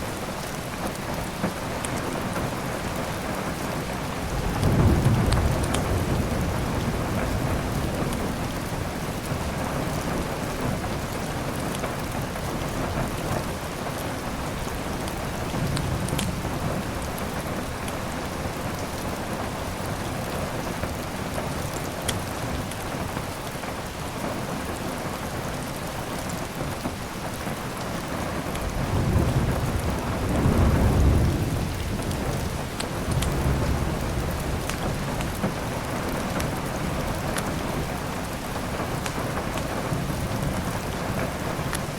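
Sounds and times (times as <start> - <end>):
heavy rain: 0.0 - 41.9
thunder rumbling: 4.0 - 11.4, 28.4 - 41.9
wood fire crackling: 5.3 - 6.3, 14.7 - 16.6, 31.4 - 41.9.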